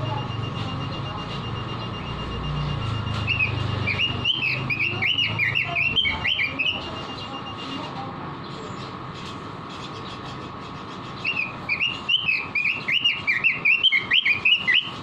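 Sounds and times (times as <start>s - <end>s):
bird singing whistled notes: 3.2s - 7.3s, 11.2s - 15.0s.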